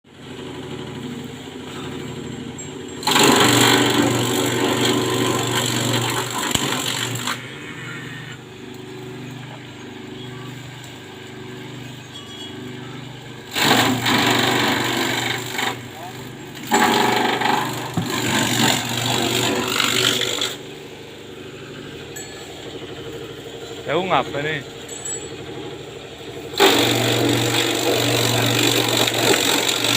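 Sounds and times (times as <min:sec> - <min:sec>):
grass being shredded: 0:00.1 - 0:29.9
grass chopper engine running: 0:00.1 - 0:29.9.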